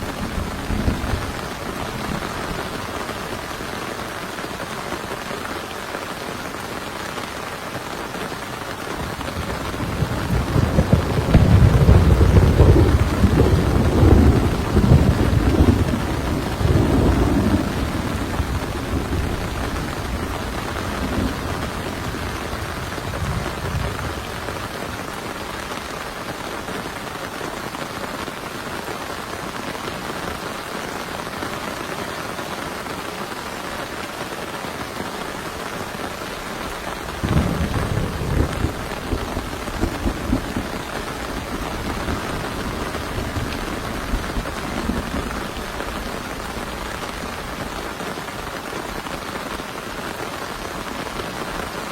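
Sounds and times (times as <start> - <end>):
thunder rumbling: 0.0 - 3.7, 9.0 - 26.1, 35.8 - 48.0
heavy rain: 0.0 - 51.9.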